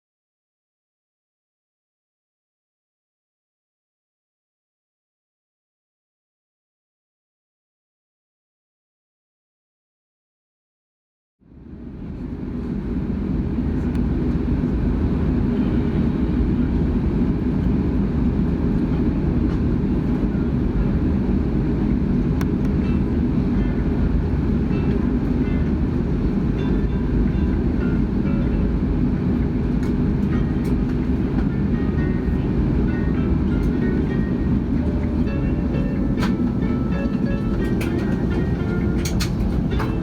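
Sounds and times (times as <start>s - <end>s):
vehicle rumble: 20.8s - 40.0s.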